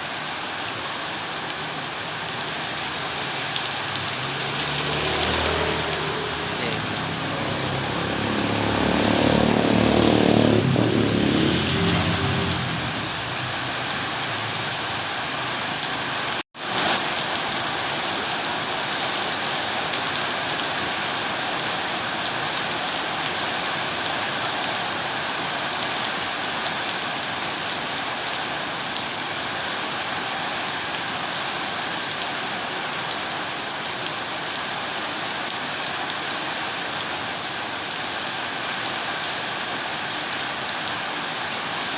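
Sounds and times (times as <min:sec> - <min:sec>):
steady rain hiss: 0:00.0 - 0:41.9.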